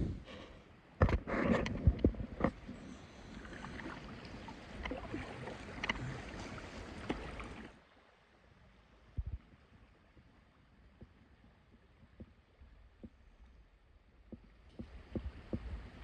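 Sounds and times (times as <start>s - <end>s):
water washing and splashing: 2.8s - 7.8s.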